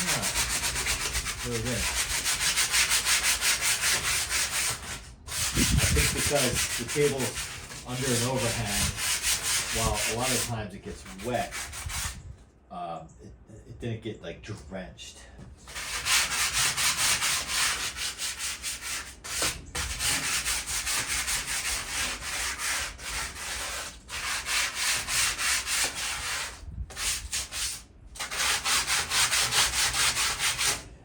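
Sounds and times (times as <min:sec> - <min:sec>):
sandpaper rubbing on metal: 0:00.0 - 0:12.2, 0:15.7 - 0:30.8.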